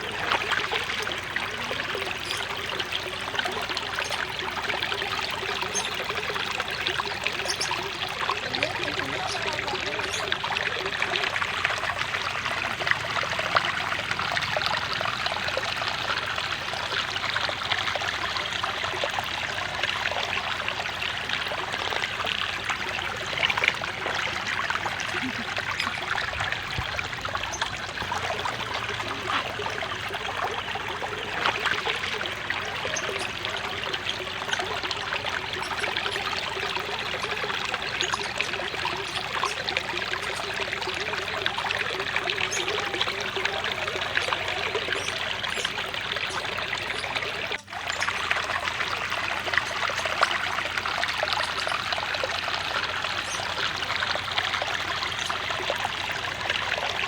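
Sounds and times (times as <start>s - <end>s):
water trickling into a pond: 0.0s - 57.0s.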